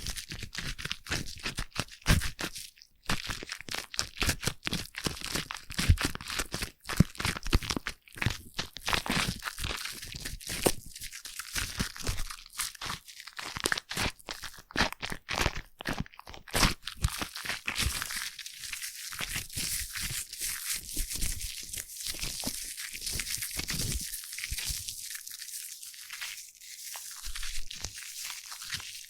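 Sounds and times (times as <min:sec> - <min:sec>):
foam squished and rubbed: 0:17.0 - 0:29.0.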